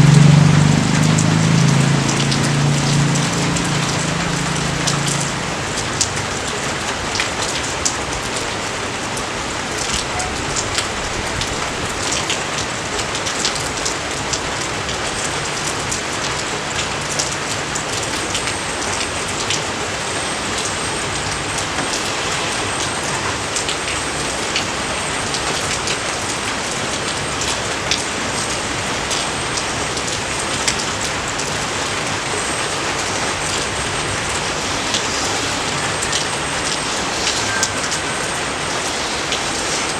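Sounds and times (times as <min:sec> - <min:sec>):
raindrop impacts: 0:00.0 - 0:19.7
rain hiss: 0:00.0 - 0:39.9.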